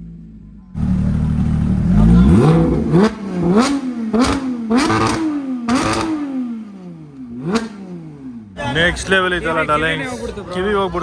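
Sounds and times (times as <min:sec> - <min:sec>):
exhaust crackle: 0:00.8 - 0:08.6
car engine revving: 0:00.8 - 0:09.2.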